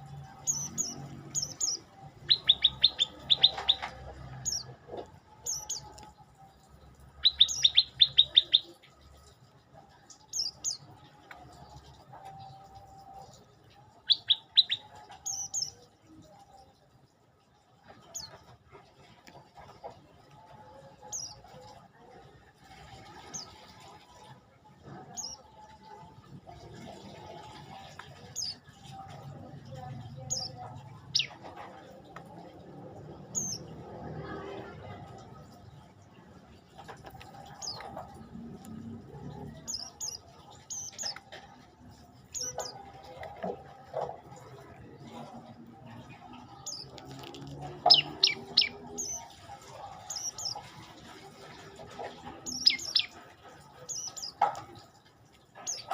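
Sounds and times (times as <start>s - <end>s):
songbird chirping: 0.0s - 24.2s, 24.8s - 55.9s
bird chirps dropping in pitch: 0.5s - 3.9s, 47.9s - 49.2s, 52.5s - 53.2s.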